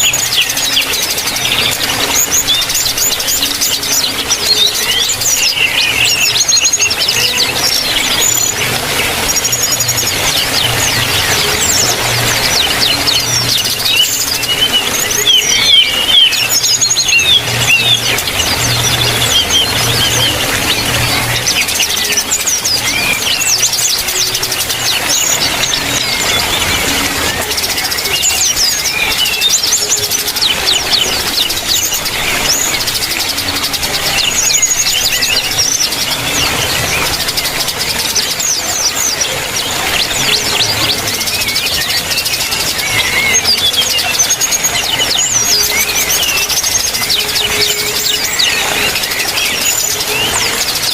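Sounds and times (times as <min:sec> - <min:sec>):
bird warbling: 0:00.0 - 0:50.9
birds chirping and calling: 0:00.0 - 0:50.9.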